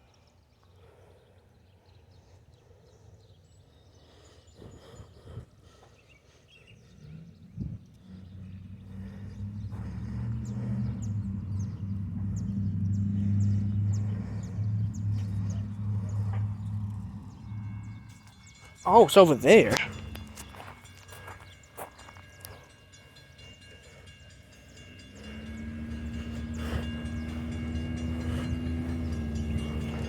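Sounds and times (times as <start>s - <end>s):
locomotive engine drone: 6.7s - 30.0s.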